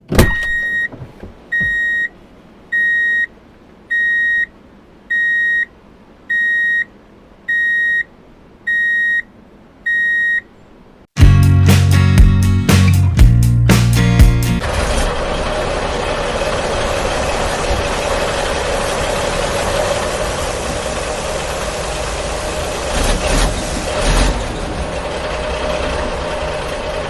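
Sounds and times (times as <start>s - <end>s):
loud music with heavy bass: 11.2s - 14.6s.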